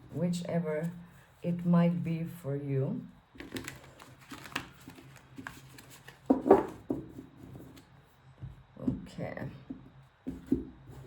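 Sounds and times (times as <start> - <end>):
cards shuffling: 3.4 - 6.8.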